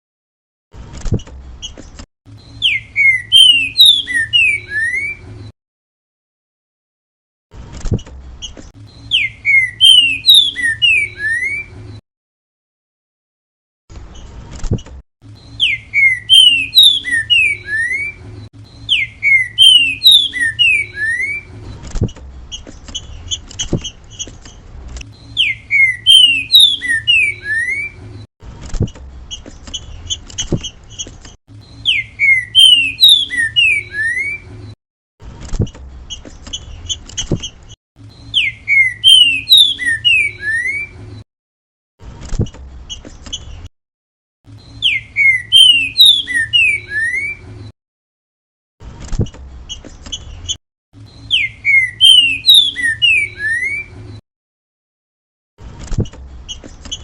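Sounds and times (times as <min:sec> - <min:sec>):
bird singing whistled notes: 0:02.3 - 0:05.4, 0:08.4 - 0:11.8, 0:15.3 - 0:21.6, 0:25.1 - 0:28.0, 0:31.6 - 0:34.6, 0:38.0 - 0:41.0, 0:44.5 - 0:47.5, 0:49.7 - 0:54.2.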